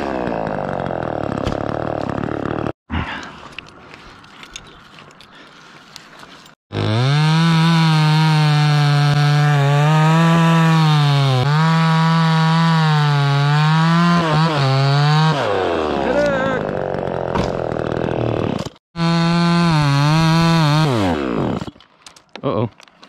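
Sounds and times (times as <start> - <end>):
chainsaw cutting wood: 0.0 - 2.8, 6.6 - 21.9.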